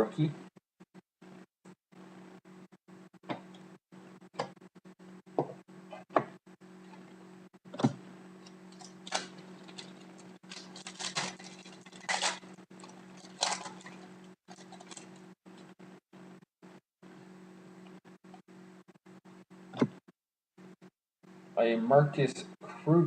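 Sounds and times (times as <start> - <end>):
low electrical hum: 2.0 - 19.7, 21.3 - 23.0
cards and wrappers rustling: 8.7 - 15.2.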